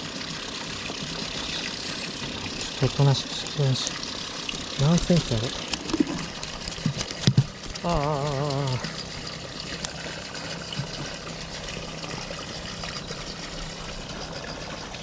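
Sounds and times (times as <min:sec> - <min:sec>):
water trickling: 0:00.0 - 0:15.0
person humming: 0:07.8 - 0:08.9.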